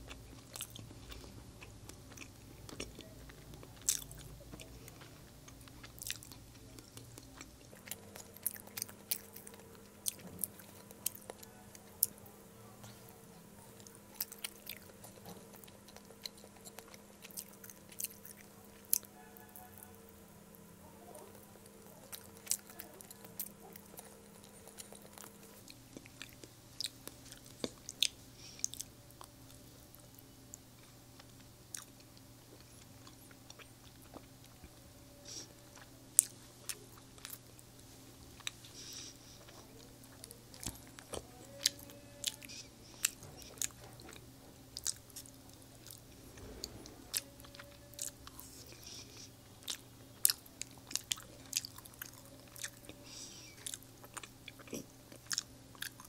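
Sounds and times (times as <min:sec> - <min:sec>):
person chewing and biting: 0:00.0 - 0:12.1, 0:13.8 - 0:19.1, 0:38.3 - 0:56.0
faint steady hum: 0:00.0 - 0:56.0.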